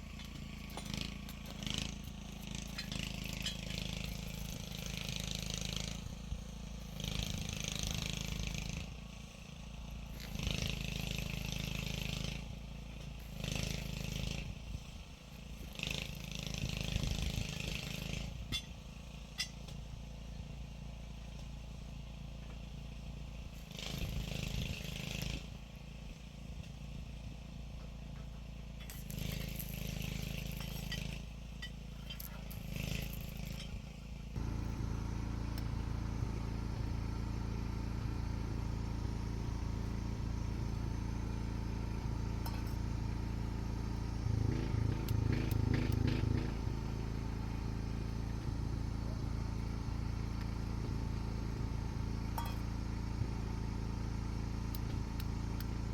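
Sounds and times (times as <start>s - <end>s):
engine humming: 0.0s - 15.0s, 28.8s - 55.9s.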